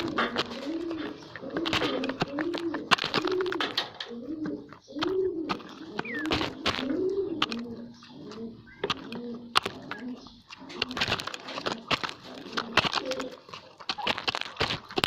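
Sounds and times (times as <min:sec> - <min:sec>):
pigeons cooing: 0:00.0 - 0:15.0
sharp clicks and taps: 0:00.0 - 0:15.0.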